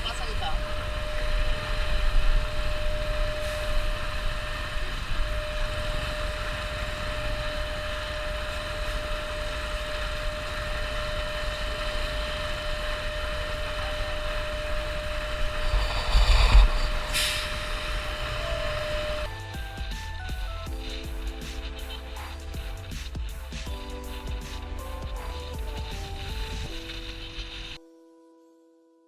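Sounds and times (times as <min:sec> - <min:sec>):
motorcycle engine drone: 0:00.0 - 0:27.8
wind rumble on microphone: 0:00.0 - 0:27.8.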